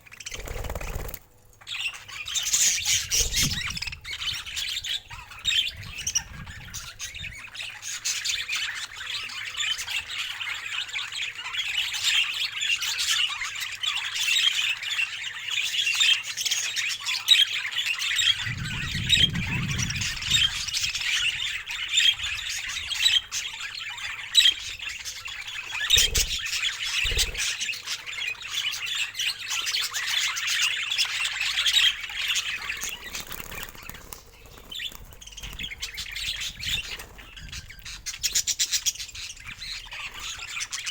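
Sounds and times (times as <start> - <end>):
budgerigars chattering: 0.0 - 40.9
low rumble: 18.4 - 21.0.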